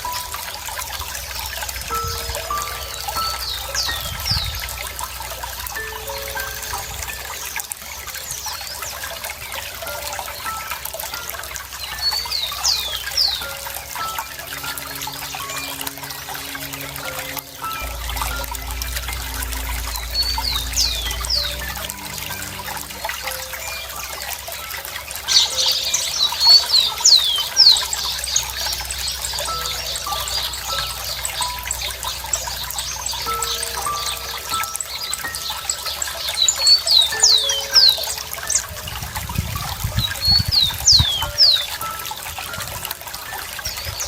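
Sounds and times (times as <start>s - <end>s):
songbird chirping: 0.0s - 39.0s
running water trickling: 0.0s - 44.0s
bird whistling descending notes: 11.8s - 28.6s.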